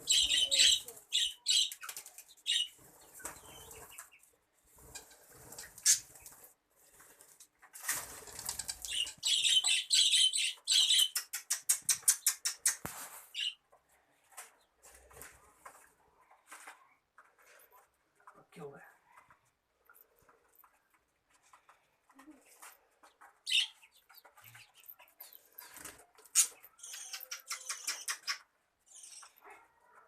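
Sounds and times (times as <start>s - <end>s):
high bird chirps: 0.0s - 4.1s, 8.7s - 13.6s, 23.5s - 29.4s
birds flapping wings: 7.7s - 9.2s.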